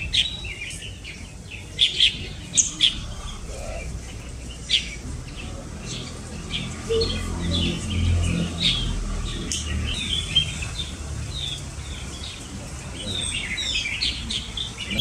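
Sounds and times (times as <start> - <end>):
songbirds chirping: 0.0 - 15.0
low steady rumble: 2.3 - 10.1.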